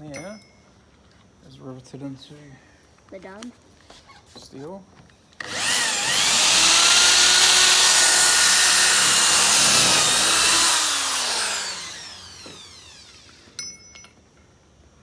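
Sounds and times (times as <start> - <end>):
drill spinning down whine: 5.4 - 13.6
power drill drilling out a rivet: 5.4 - 13.6.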